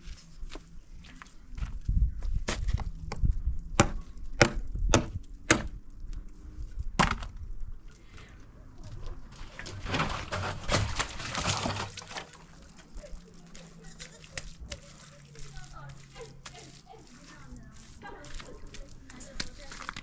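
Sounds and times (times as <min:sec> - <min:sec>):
sharp wooden knocks: 0:03.8 - 0:05.7
rustling noise: 0:07.9 - 0:20.0.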